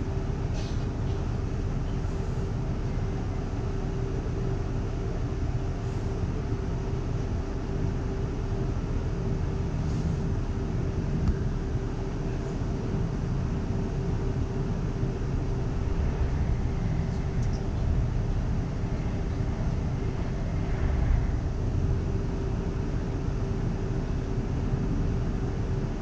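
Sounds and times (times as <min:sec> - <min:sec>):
constant hum: 0:00.0 - 0:26.0
wheels rumbling on track: 0:00.0 - 0:26.0.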